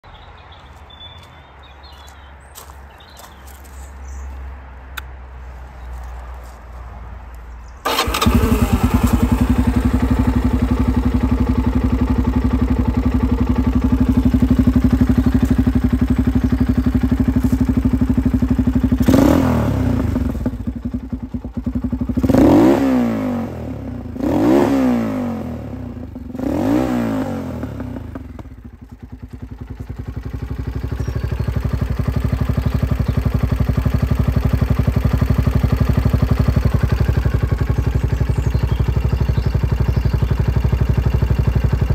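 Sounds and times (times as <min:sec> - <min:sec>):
motorcycle engine idling: 0:07.6 - 0:41.9
engine revving: 0:07.8 - 0:29.6.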